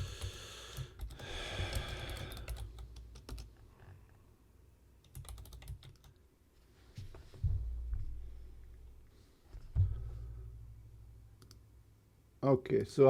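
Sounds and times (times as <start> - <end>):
typing on computer keyboard: 0.0 - 3.5, 5.0 - 6.2.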